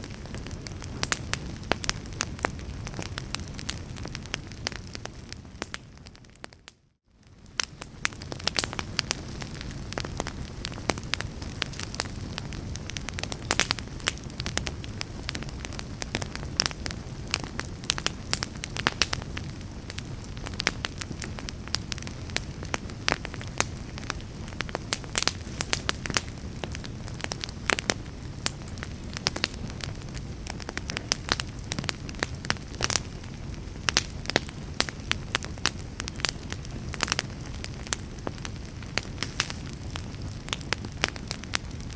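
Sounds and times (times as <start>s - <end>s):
fireplace logs crackling: 0.0s - 6.5s, 7.3s - 41.9s
low rumble of flames: 0.0s - 41.9s.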